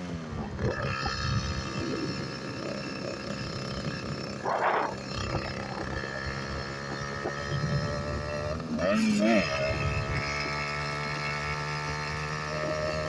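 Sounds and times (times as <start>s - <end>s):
small motor engine running: 0.0s - 13.0s
rough rumbling noise: 0.3s - 8.8s.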